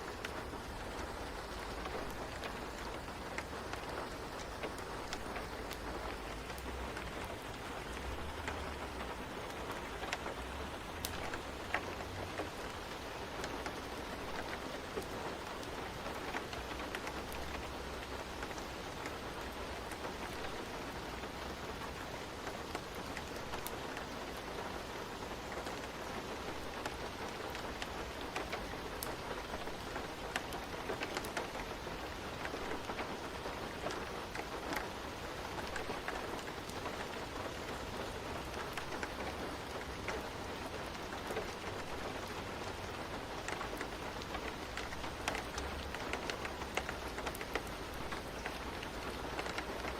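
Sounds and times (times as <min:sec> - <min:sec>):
steady rain: 0:00.0 - 0:49.9
fireplace crackles: 0:25.4 - 0:49.9.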